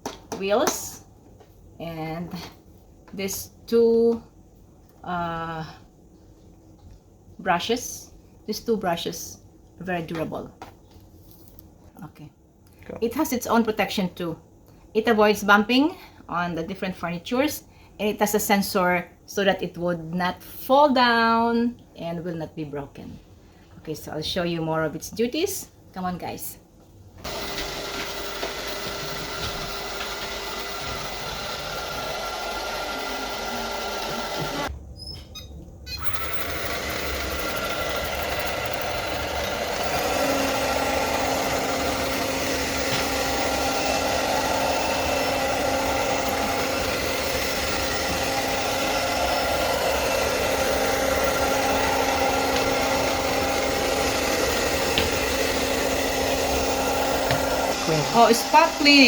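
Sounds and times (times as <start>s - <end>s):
robot vacuum motor whirring: 27.2s - 34.7s, 36.0s - 59.0s.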